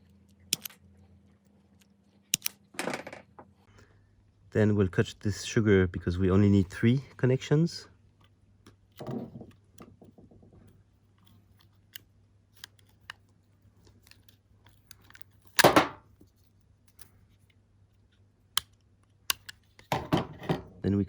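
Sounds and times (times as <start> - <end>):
small plastic clicks: 0.5 - 0.8, 1.8 - 2.6, 16.9 - 19.9.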